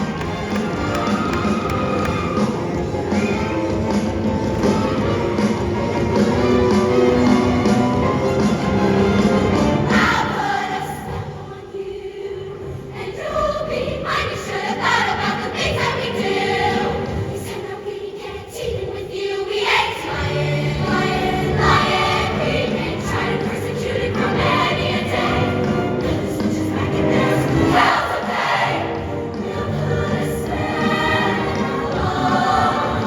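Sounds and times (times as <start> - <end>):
choir singing wordless notes: 8.8 - 33.0.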